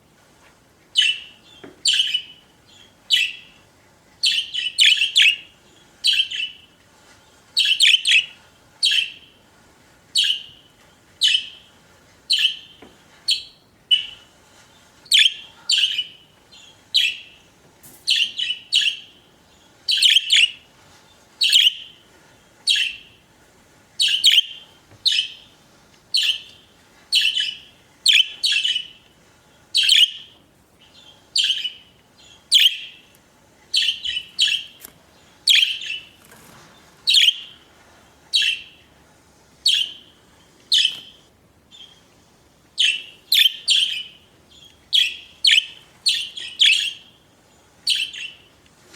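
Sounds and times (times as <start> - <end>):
budgerigars chirping: 1.9 - 2.3, 24.0 - 25.4, 26.2 - 26.6, 27.2 - 29.0, 29.8 - 30.3, 31.0 - 31.8, 32.5 - 33.0, 33.8 - 34.8, 35.5 - 36.1, 37.1 - 37.5, 38.4 - 38.7, 39.7 - 40.1, 40.7 - 41.9, 42.8 - 44.2, 44.9 - 47.1, 47.9 - 48.4.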